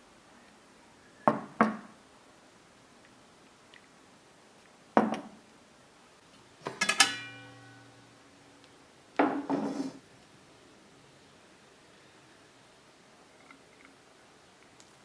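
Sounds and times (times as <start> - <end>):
dishes clattering and clinking: 6.6 - 7.9
dish scraping: 6.6 - 8.1, 9.3 - 10.0.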